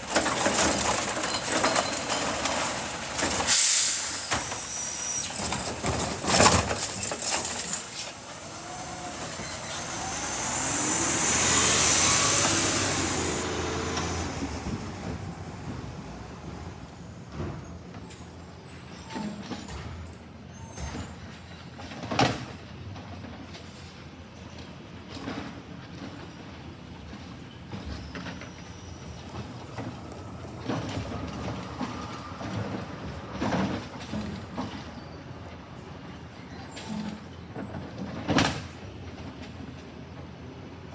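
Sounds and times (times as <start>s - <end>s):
garbage truck air hiss: 2.6s - 17.9s
low engine hum: 5.8s - 17.4s.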